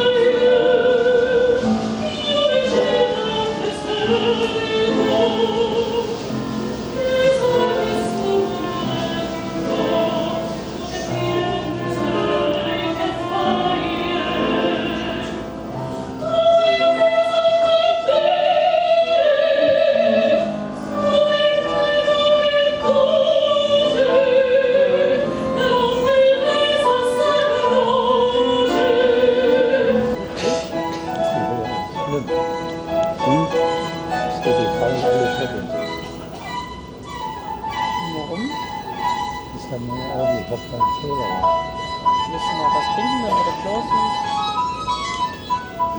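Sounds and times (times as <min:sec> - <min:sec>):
operatic singing: 0:00.0 - 0:36.5
orchestral accompaniment: 0:28.6 - 0:45.9.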